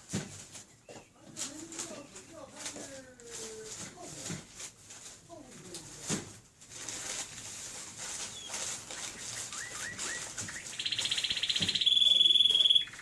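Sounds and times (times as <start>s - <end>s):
bird fast trill: 8.3s - 13.0s
small bird chirping: 8.3s - 13.0s.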